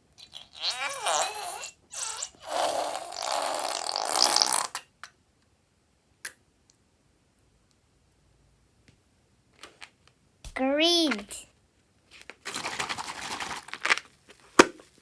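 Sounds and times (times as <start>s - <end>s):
fart-like air sputter: 0.1s - 4.9s.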